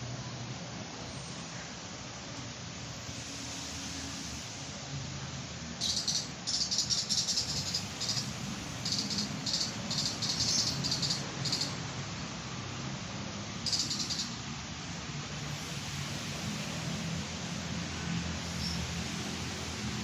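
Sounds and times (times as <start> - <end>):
low background noise: 0.0 - 20.0
high-pitched insect trill: 5.8 - 11.8, 13.6 - 14.4.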